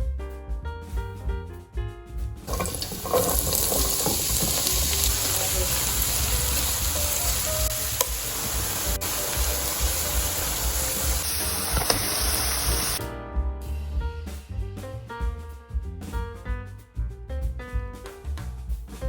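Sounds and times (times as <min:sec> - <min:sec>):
background music with steady beat: 0:00.0 - 0:02.6, 0:05.9 - 0:19.0
food sizzling in a frying pan: 0:02.5 - 0:13.0.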